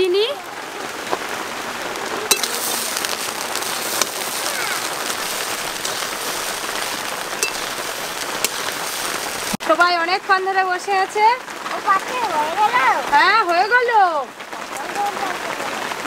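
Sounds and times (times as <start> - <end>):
steady rain: 0.0 - 16.0
metal spatula clinking: 2.3 - 3.2, 6.8 - 9.2.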